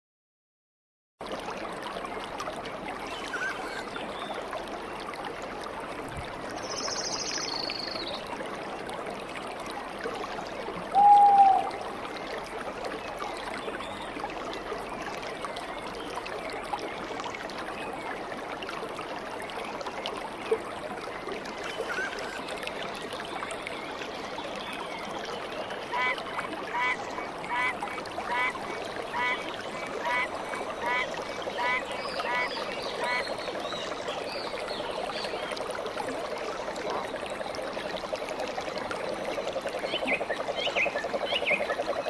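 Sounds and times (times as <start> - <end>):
stream water flowing: 1.2 - 42.0
bird calls: 11.0 - 11.7.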